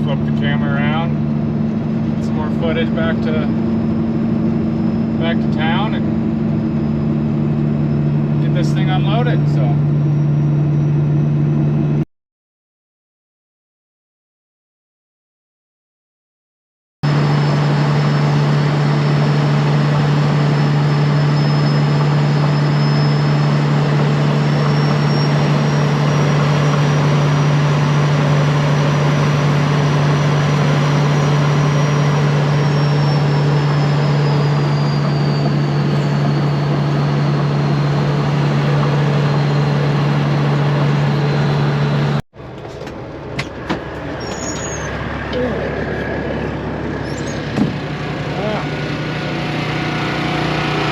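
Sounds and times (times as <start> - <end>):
diesel truck engine droning: 0.0 - 12.0, 17.0 - 50.9
faint high whine: 2.0 - 12.0.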